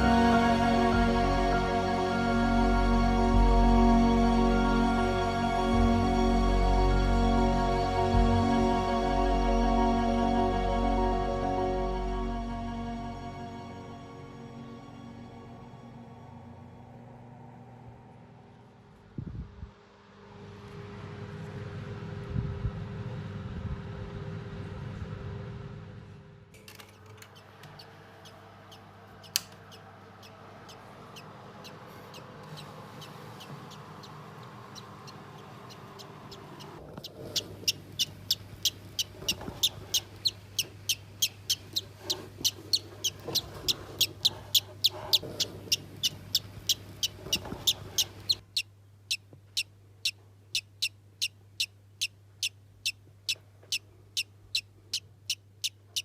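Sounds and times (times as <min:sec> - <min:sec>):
low murmur and hum: 0:00.0 - 0:56.0
parrot chirping: 0:27.3 - 0:56.0.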